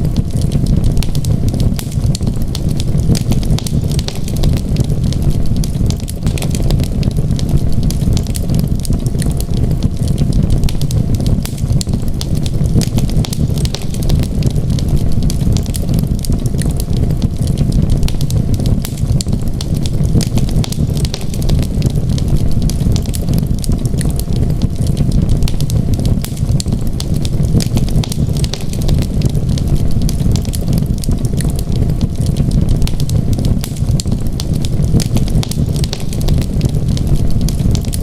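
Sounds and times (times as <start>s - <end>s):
low rumble of flames: 0.0s - 38.0s
wood fire crackling: 0.0s - 38.0s.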